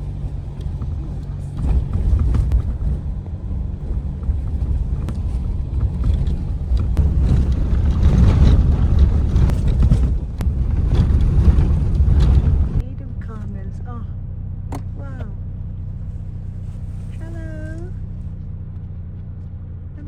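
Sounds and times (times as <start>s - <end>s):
wind buffeting microphone: 0.0s - 13.8s.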